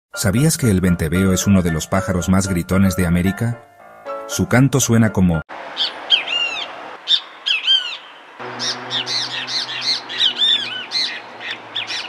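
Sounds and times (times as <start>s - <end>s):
bird calling harsh notes: 5.7s - 12.0s.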